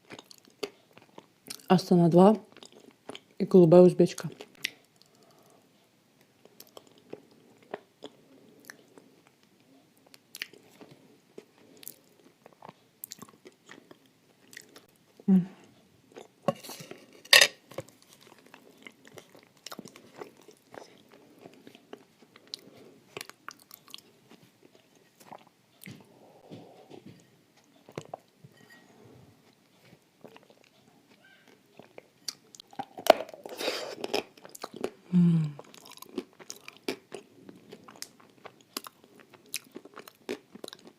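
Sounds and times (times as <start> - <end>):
chewing and crunching clay: 17.9 - 26.0, 29.5 - 40.9.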